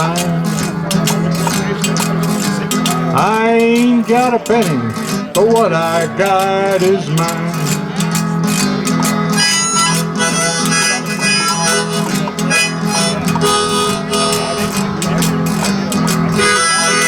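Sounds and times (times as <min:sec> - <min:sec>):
strummed guitar: 0:00.0 - 0:17.0
person singing: 0:03.1 - 0:08.1, 0:09.4 - 0:15.6
harmonica playing: 0:09.3 - 0:17.0.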